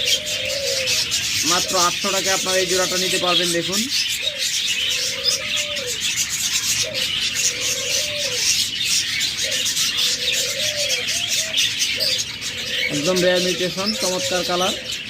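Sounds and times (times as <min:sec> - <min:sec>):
dove cooing: 0:00.0 - 0:15.0
small cage birds chirping: 0:00.0 - 0:15.0.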